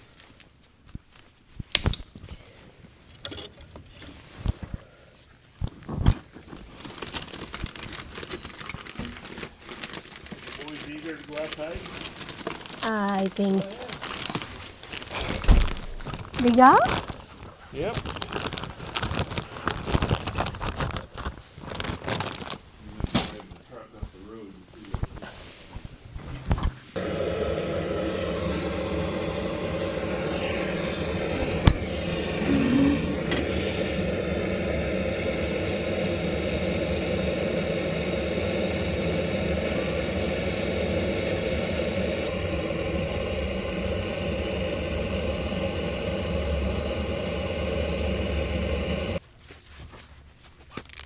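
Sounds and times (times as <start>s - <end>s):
motor running: 27.0s - 49.2s.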